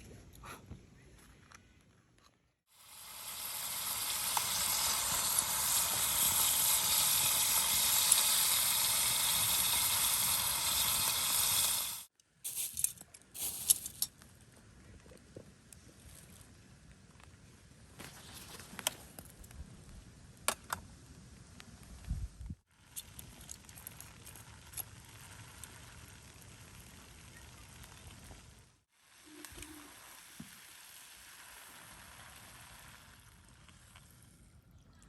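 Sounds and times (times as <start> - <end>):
loud steady hiss: 2.7 - 12.8.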